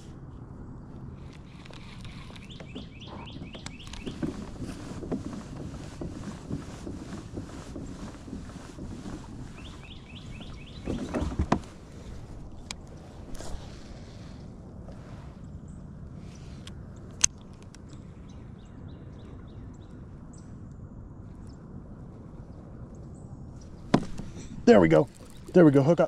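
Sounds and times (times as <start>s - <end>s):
low rumble of water: 0.0s - 26.0s
knock and rustle: 2.5s - 11.8s, 23.7s - 24.6s.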